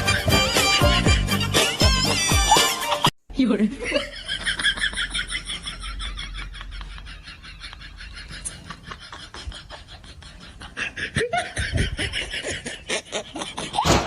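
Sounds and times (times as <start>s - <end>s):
person giggling: 3.8s - 14.0s.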